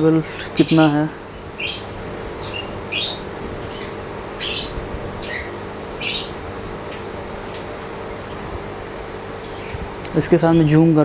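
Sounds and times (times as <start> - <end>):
small birds chirping: 0.0 - 11.0
steady low hum: 0.0 - 11.0.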